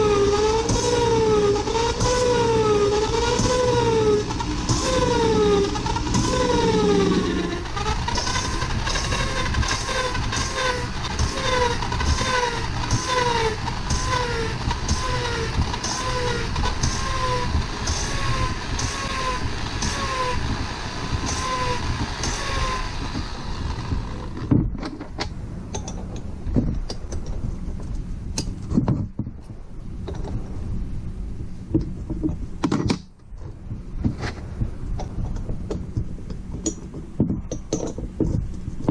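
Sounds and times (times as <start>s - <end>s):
short rising squeak: 0.0s - 20.5s
valve-seat tool scraping: 0.0s - 25.2s
metal parts clicking and knocking: 21.2s - 27.4s, 34.9s - 38.9s.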